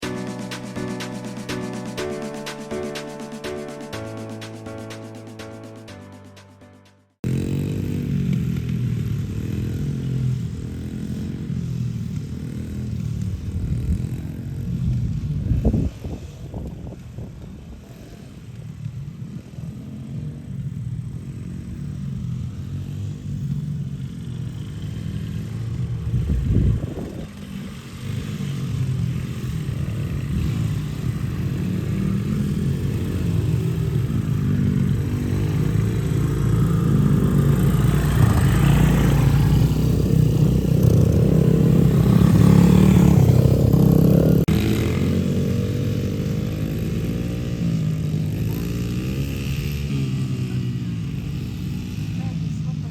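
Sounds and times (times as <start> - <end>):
dirt bike engine running: 7.2 - 15.5, 18.6 - 49.9.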